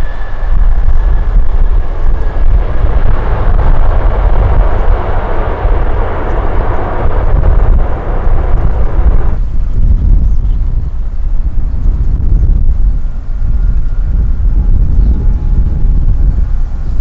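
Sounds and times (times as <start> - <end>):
jet engines roaring: 0.0 - 10.1
wind buffeting microphone: 0.0 - 17.0.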